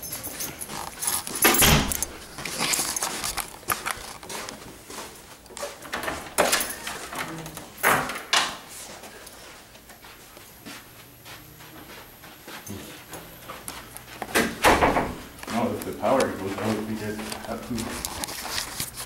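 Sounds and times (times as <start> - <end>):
objects being handled: 0.0 - 7.8, 15.3 - 19.0.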